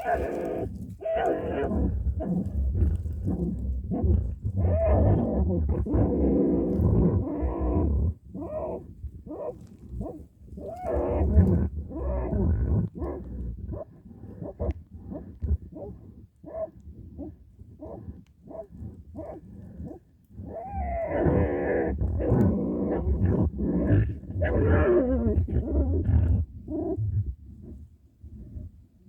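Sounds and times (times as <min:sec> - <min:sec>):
animals growling and snarling: 0:00.0 - 0:16.1, 0:17.2 - 0:27.8.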